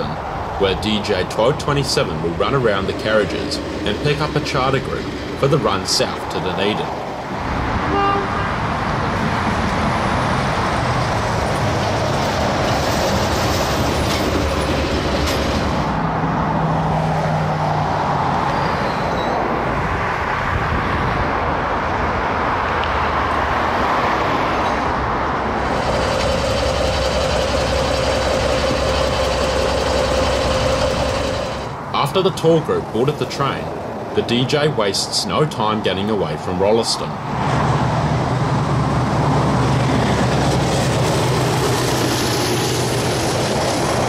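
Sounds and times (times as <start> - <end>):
train wheels rumbling on rails: 0.0 - 7.1, 9.1 - 16.2, 25.5 - 33.4, 38.6 - 44.0
locomotive engine drone: 0.0 - 16.8, 24.7 - 34.5, 38.2 - 44.0.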